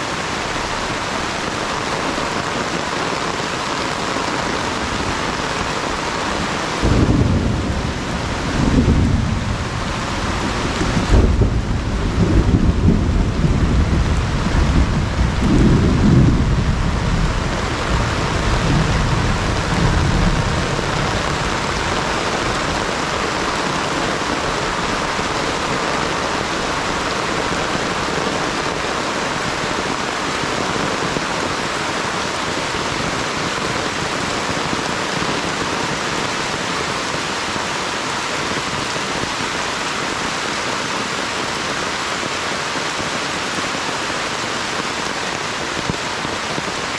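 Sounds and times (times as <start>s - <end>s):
steady rain pouring: 0.0s - 46.9s
low rumble of thunder: 6.8s - 23.0s.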